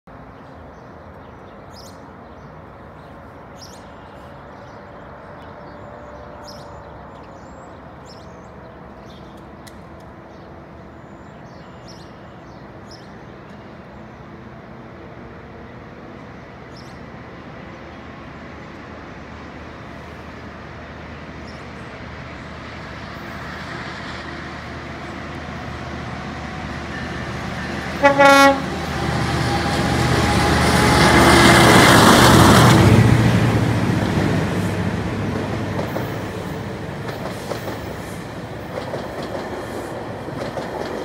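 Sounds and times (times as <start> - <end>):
distant diesel train drone: 0.1 - 41.0
traffic hum: 0.1 - 41.0.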